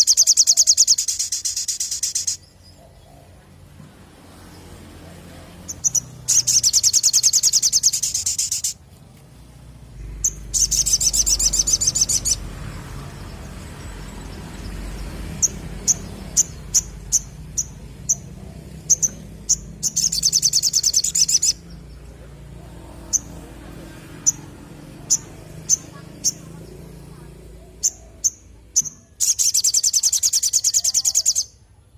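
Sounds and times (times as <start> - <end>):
bird rapid high trills: 0.0 - 2.6, 5.7 - 8.8, 10.0 - 21.8, 22.9 - 31.6
bird sharp chips: 5.7 - 8.8, 10.0 - 12.5.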